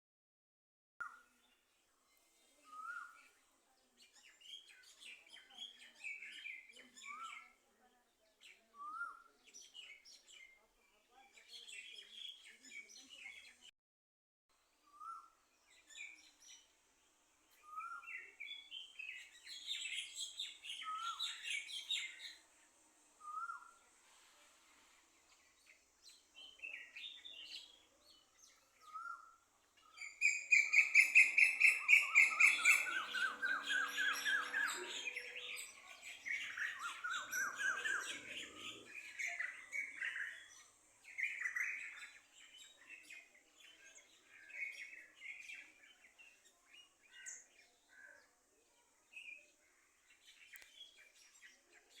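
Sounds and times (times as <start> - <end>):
songbird singing trills: 2.1 - 7.9, 17.4 - 22.6, 23.2 - 23.9, 25.2 - 48.4, 49.1 - 52.0.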